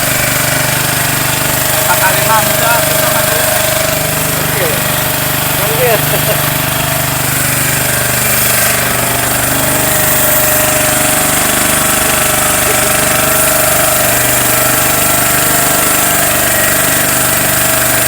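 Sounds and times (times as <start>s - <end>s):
boat engine running: 0.0s - 18.0s
fast even rattle: 0.0s - 18.0s.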